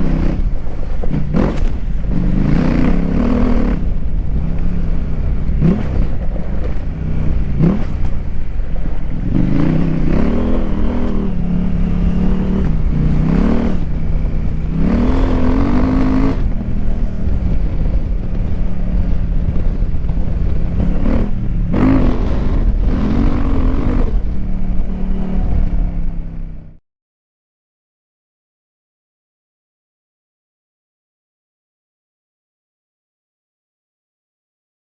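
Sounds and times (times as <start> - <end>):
motorcycle engine revving: 0.0 - 26.8.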